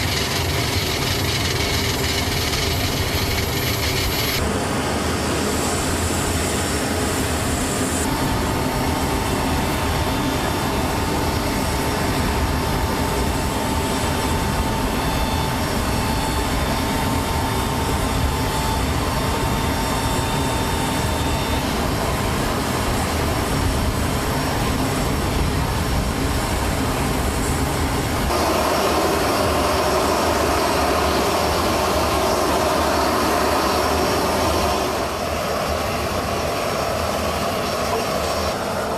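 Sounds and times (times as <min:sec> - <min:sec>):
aircraft engine drone: 0:00.0 - 0:38.9
faint high whine: 0:00.1 - 0:24.8.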